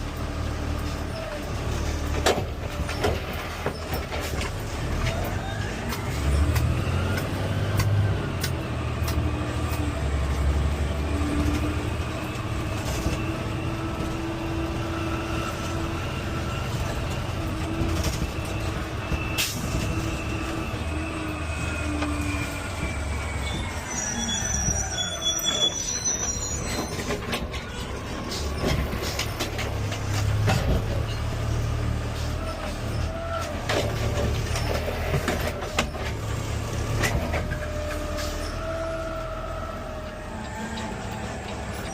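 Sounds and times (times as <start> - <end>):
truck engine running low: 0.0 - 41.9
garbage truck hydraulic whine: 12.7 - 31.3.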